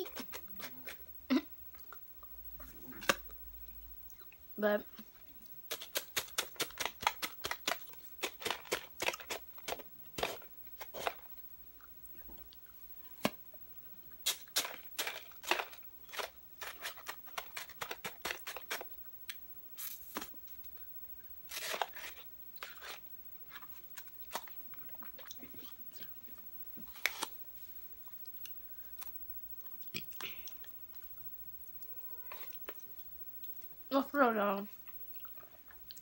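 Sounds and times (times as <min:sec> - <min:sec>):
chewing with lip smacks: 0:01.7 - 0:05.9, 0:11.7 - 0:14.2, 0:24.0 - 0:26.5, 0:28.0 - 0:33.8, 0:34.8 - 0:36.0.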